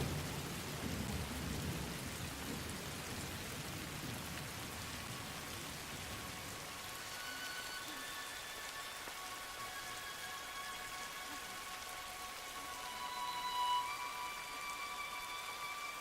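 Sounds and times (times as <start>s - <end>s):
low rumble of thunder: 0.0s - 6.0s
heavy rain falling: 0.0s - 16.0s.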